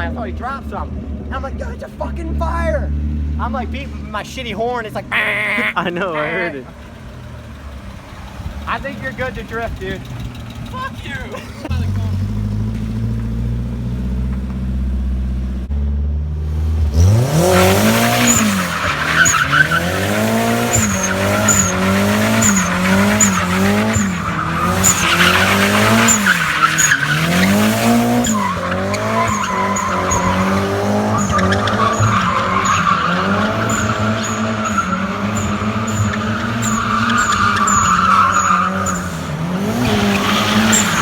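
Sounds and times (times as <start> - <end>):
tyre squeal: 5.1 - 6.7, 18.1 - 41.0
car engine revving: 11.7 - 41.0.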